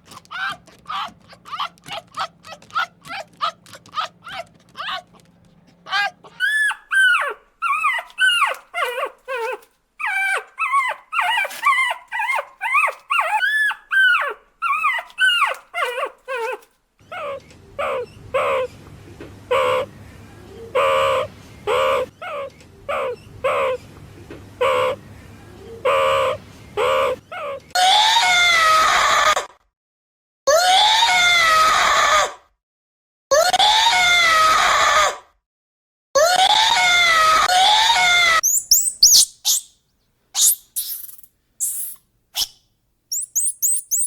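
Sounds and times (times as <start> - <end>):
puppies whimpering and yipping: 0.0 - 16.6, 38.4 - 39.7, 40.4 - 42.5, 43.1 - 44.0.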